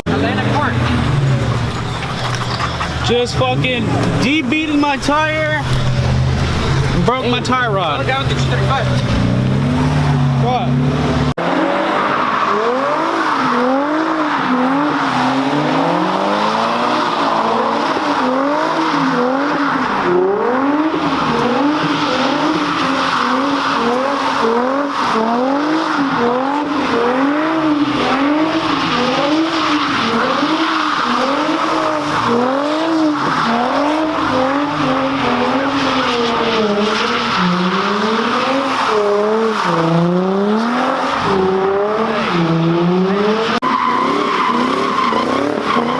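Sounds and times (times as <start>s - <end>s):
car engine revving: 0.0s - 45.9s
tyres squealing: 0.2s - 10.5s, 27.9s - 45.9s.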